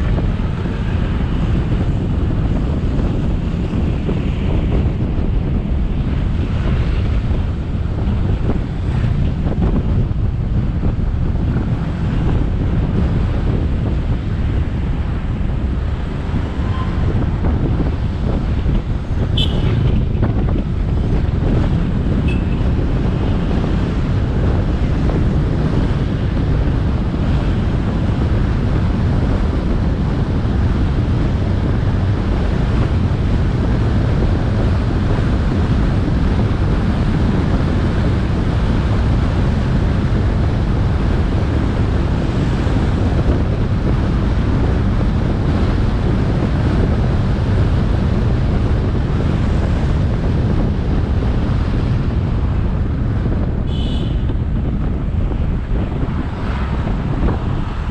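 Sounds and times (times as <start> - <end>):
wind buffeting microphone: 0.0 - 57.9
motorcycle engine: 18.0 - 23.4.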